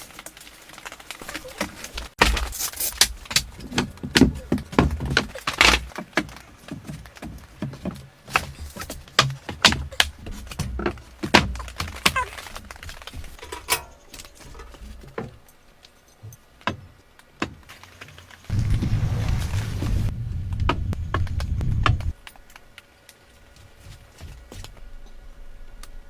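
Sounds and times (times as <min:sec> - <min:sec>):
dull thumps: 0:01.6 - 0:15.4, 0:18.5 - 0:22.2
steady noise: 0:18.5 - 0:22.2.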